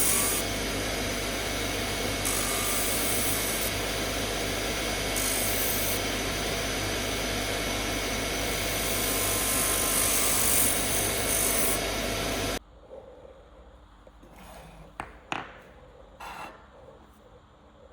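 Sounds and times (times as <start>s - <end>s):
electric power tool running: 0.0s - 12.6s.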